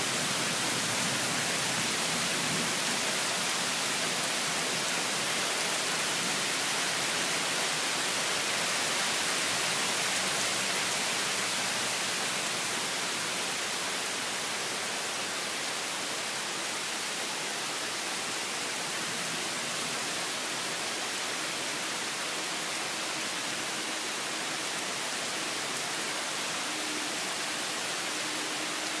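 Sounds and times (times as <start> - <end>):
torrential rain pouring: 0.0 - 29.0.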